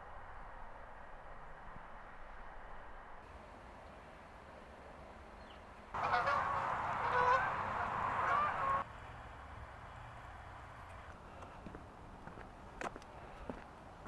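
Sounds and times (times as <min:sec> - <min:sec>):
faint outdoor hiss: 0:00.0 - 0:14.0
geese honking: 0:06.0 - 0:08.9.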